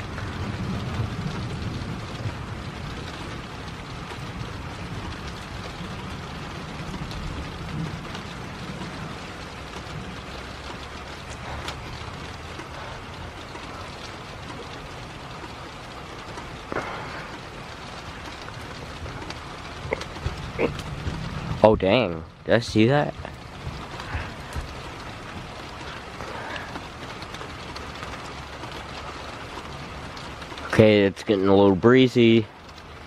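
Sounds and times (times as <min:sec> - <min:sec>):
rain falling: 0:00.0 - 0:33.0
drops ticking: 0:06.8 - 0:31.6.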